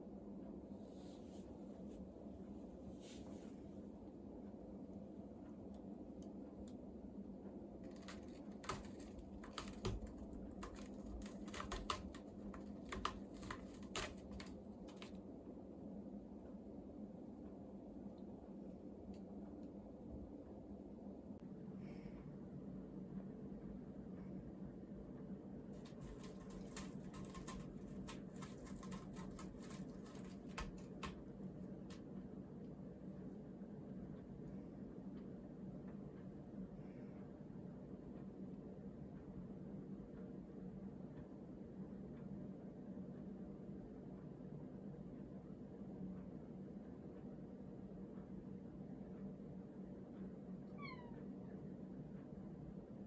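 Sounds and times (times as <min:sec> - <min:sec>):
low steady hum: 0:00.0 - 0:53.0
cat clawing a scratching pole: 0:07.8 - 0:15.2, 0:25.8 - 0:32.0.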